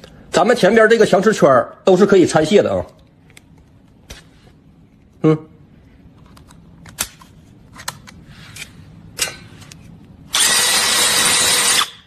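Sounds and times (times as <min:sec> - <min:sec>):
electric drill running: 0:10.3 - 0:12.0.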